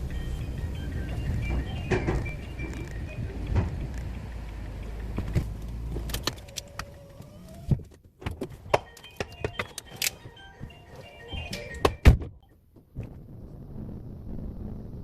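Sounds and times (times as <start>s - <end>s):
low steady hum: 10.2s - 15.0s.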